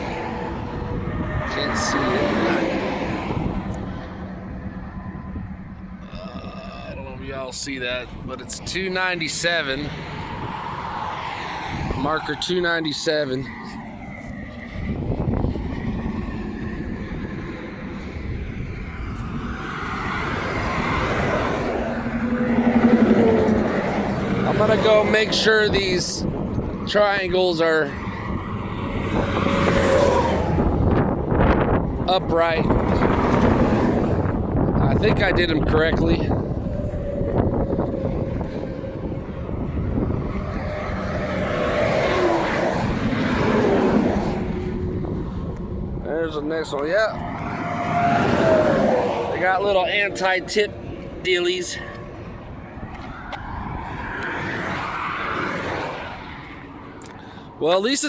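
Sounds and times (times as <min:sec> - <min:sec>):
vehicle rushing past: 0:00.0 - 0:57.7
highway traffic rumble: 0:00.0 - 0:58.0.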